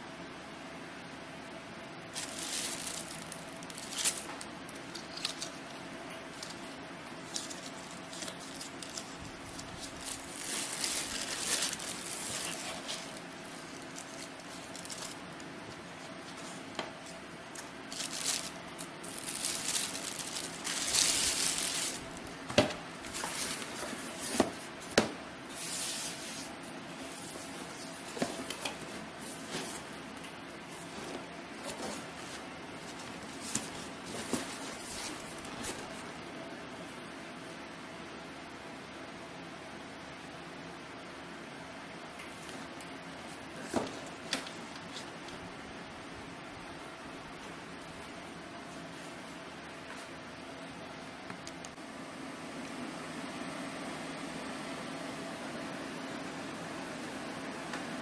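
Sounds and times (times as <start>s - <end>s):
faint steady hum: 0.0s - 58.0s
packaging rustling and crinkling: 2.1s - 5.6s, 6.3s - 30.0s, 30.7s - 36.1s.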